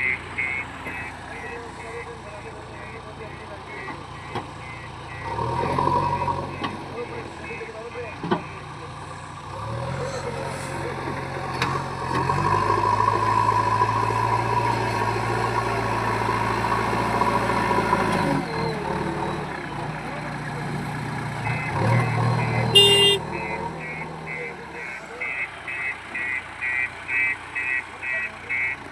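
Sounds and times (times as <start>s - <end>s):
short repeated beeps: 0.0s - 2.1s, 2.8s - 5.4s, 7.4s - 8.6s, 21.4s - 28.8s
heavy diesel engine running: 0.0s - 28.9s.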